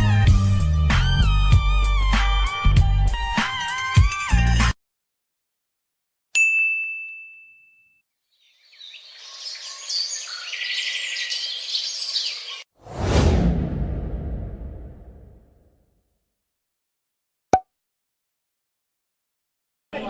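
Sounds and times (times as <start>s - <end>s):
high bell-like ding: 6.4s - 8.0s
birds chirping: 8.3s - 12.7s.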